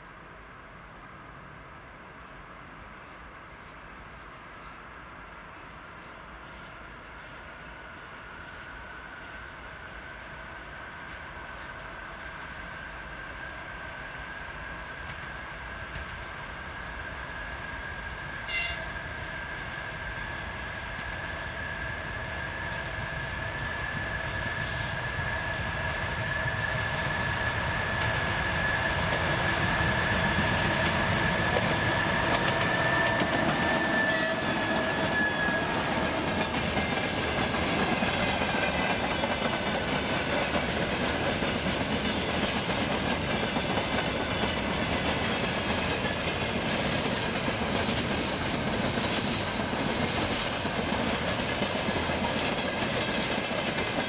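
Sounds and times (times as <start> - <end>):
train rolling past: 0.8 - 54.0
high wheel squeal: 30.0 - 36.3.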